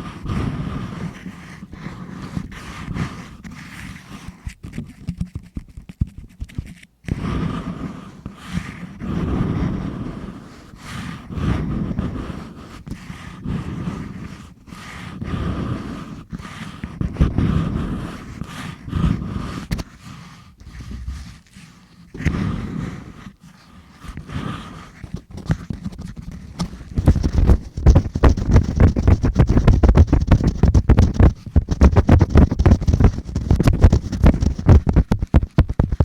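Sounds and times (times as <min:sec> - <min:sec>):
tool scraping against microphone: 0:01.8 - 0:08.7, 0:18.4 - 0:36.0
low rumble: 0:20.7 - 0:21.4.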